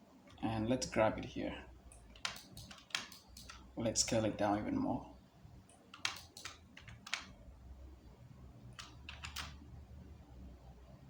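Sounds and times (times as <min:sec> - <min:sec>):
low room hum: 0:00.0 - 0:11.0
computer keyboard clicks: 0:02.2 - 0:03.6, 0:05.9 - 0:07.3, 0:08.8 - 0:09.6.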